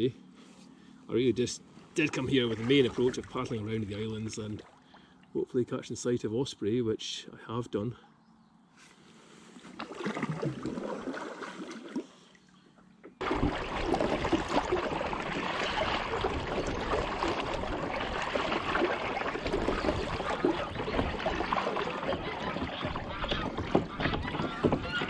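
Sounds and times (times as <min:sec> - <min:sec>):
water splashing against a kayak: 0:02.0 - 0:05.2, 0:09.6 - 0:12.3, 0:13.1 - 0:25.0.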